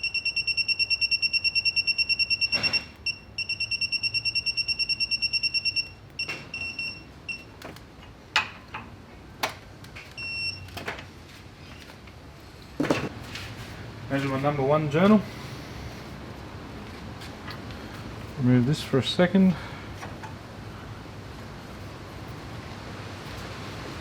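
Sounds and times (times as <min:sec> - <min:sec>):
rapid electronic beeping: 0:00.0 - 0:06.0.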